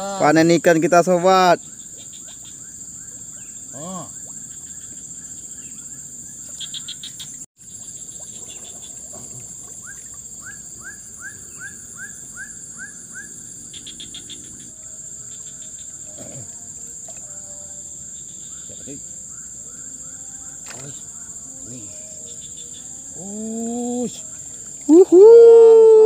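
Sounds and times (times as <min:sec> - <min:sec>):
high-pitched insect drone: 0:00.0 - 0:09.0, 0:09.7 - 0:26.0
pulsed cricket trills: 0:00.0 - 0:26.0.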